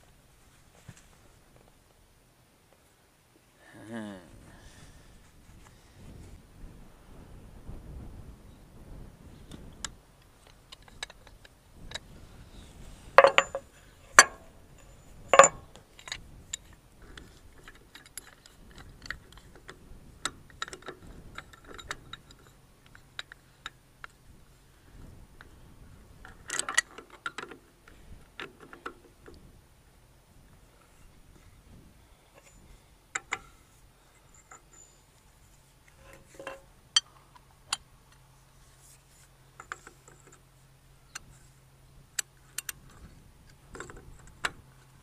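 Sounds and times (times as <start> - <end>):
light metal taps: 13.2 - 13.6
metal tools clanking: 13.2 - 16.2, 33.2 - 35.1, 35.9 - 37.2.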